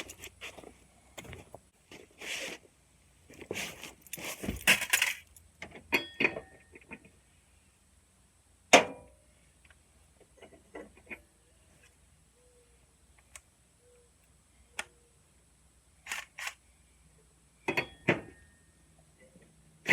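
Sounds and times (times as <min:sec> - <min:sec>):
metal tools clinking and scraping: 0:03.4 - 0:06.8.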